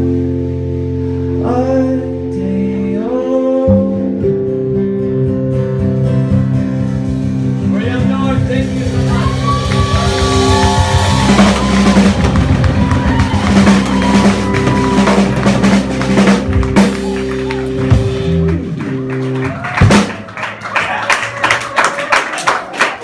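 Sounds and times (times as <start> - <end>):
guitar and keyboard chords: 0.0 - 20.8
person singing: 1.3 - 4.5
drum kit: 6.4 - 21.0.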